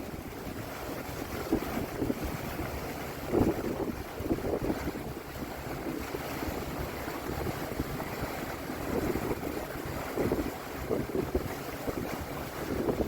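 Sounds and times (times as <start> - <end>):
boat and water rumble: 0.0 - 13.0
wind buffeting microphone: 0.0 - 13.0.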